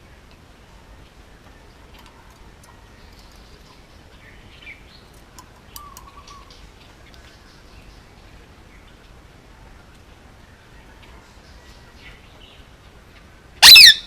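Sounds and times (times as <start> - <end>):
parakeet chirping: 13.6 - 14.0
parakeet warbling whistle: 13.6 - 14.0.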